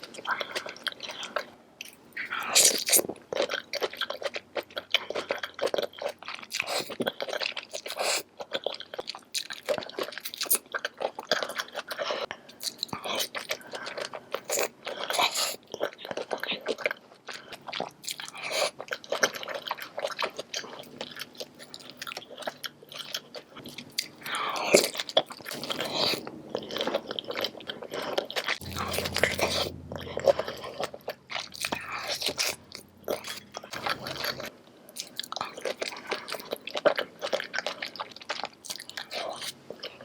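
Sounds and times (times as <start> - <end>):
wet crunchy chewing: 0.0 - 40.0
low steady hum: 22.7 - 36.6.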